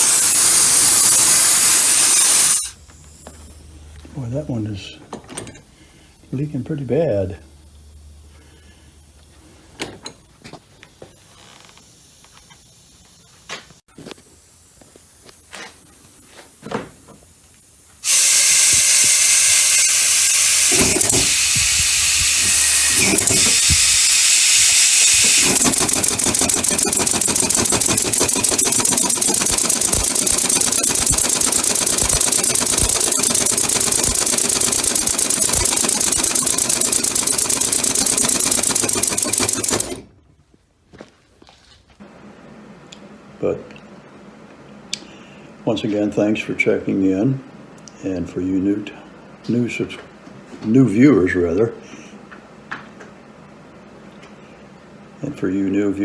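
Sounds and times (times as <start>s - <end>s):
compressed air hissing: 0.0s - 3.2s, 14.3s - 37.8s
fast even ticking: 24.6s - 40.0s.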